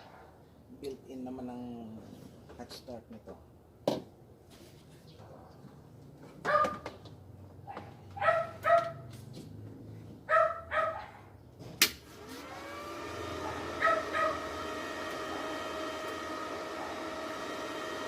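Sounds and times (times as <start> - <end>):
dog barking: 6.4 - 6.8, 7.6 - 9.1, 10.3 - 11.3, 13.4 - 14.4
cooling fan whine: 11.9 - 18.0.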